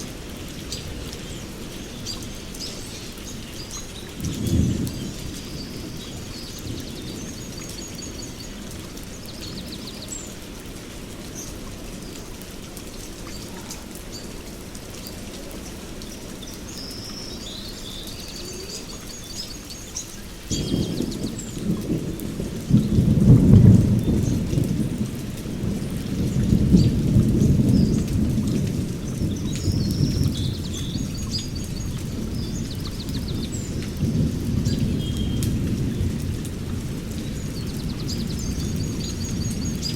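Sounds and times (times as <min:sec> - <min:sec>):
steady rain: 0:00.0 - 0:39.9
low roll of thunder: 0:04.0 - 0:07.9, 0:20.5 - 0:39.9
birds chirping: 0:11.3 - 0:21.9.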